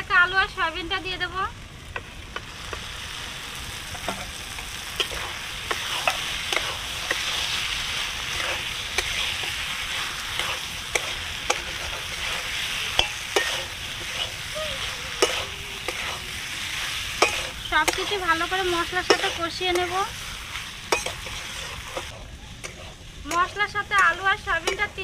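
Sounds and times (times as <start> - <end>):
food sizzling in oil: 0.0 - 25.0
metal spatula scraping pan: 8.3 - 25.0.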